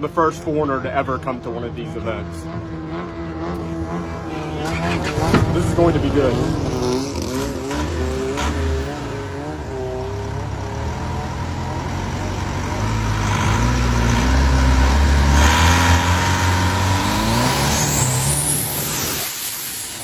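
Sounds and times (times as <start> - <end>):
boat engine accelerating: 0.0 - 19.5
loud hiss: 17.4 - 20.0.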